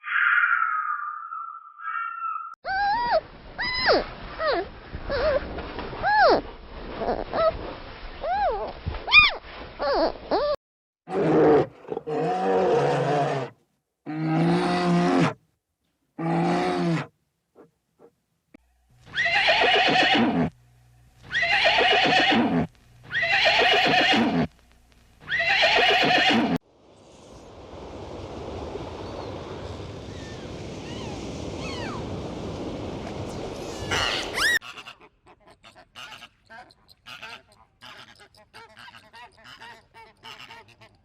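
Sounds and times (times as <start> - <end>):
horse whinnying: 19.1 - 20.5, 21.3 - 24.5, 25.3 - 26.6
steady rushing noise: 26.6 - 34.6.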